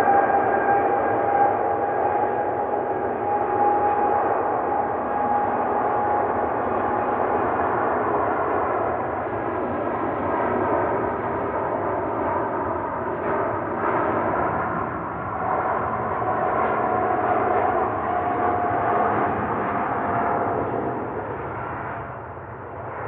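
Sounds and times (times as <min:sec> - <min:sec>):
jet engines at takeoff thrust: 0:00.0 - 0:23.0
steady jet engine whine: 0:00.0 - 0:23.0.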